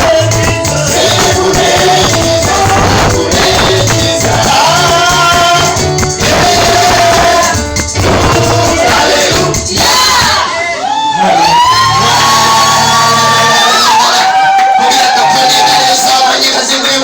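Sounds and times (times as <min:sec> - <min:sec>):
tambourine and shaker rhythm: 0:00.0 - 0:10.4
bass: 0:00.0 - 0:10.7, 0:11.3 - 0:14.0
group singing gospel: 0:00.0 - 0:14.5.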